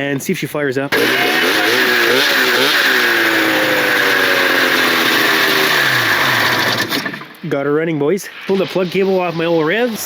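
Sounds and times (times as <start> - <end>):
snowmobile engine running: 0.9 - 7.3.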